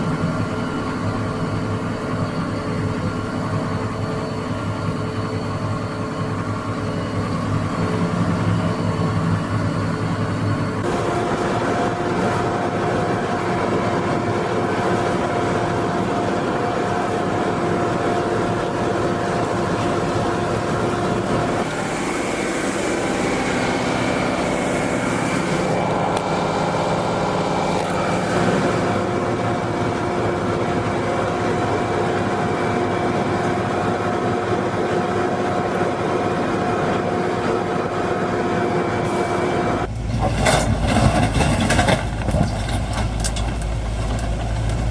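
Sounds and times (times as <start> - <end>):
tractor engine: 0.0 - 44.9
wood chipper whining: 0.0 - 44.9
deep rumble with knocks: 39.9 - 44.9.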